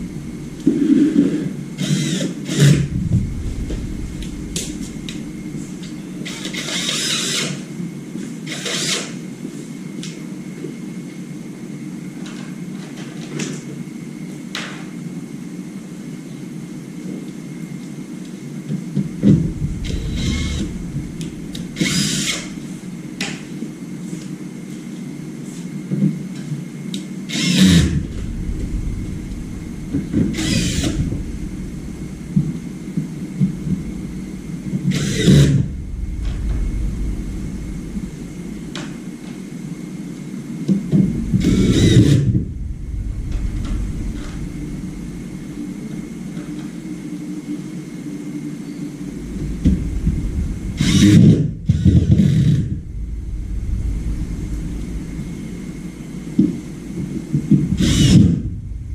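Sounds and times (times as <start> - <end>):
low hum: 0.0 - 6.8, 18.2 - 25.3, 26.9 - 58.9.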